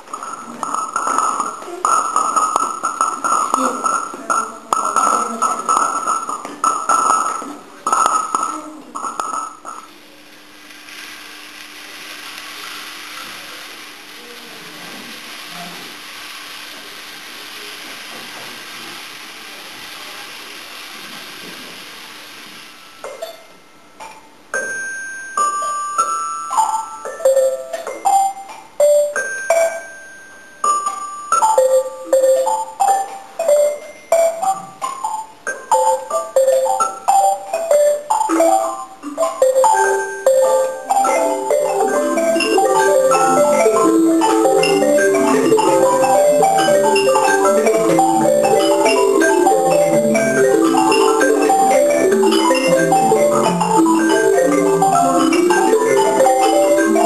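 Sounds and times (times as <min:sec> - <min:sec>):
steady hiss: 0:00.0 - 0:24.6, 0:25.2 - 0:57.0
tuned mallet percussion: 0:22.8 - 0:57.0.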